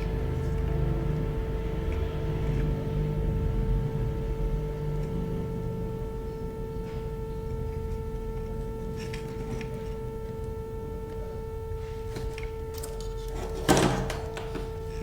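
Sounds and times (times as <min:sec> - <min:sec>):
high-pitched electrical hum: 0:00.0 - 0:15.0.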